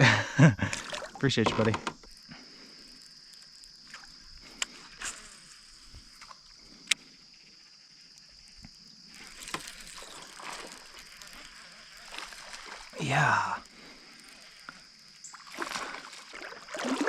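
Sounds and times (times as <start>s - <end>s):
insects droning: 0.0s - 17.0s
sharp clicks: 6.2s - 7.0s.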